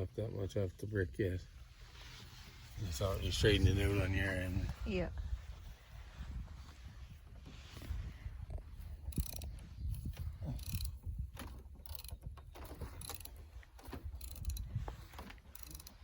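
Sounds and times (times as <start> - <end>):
jack clicking and creaking: 8.5 - 16.0.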